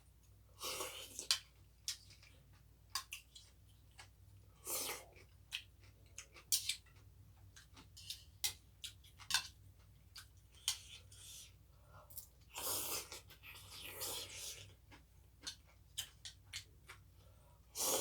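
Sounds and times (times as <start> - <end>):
person chewing wetly: 12.2 - 18.0.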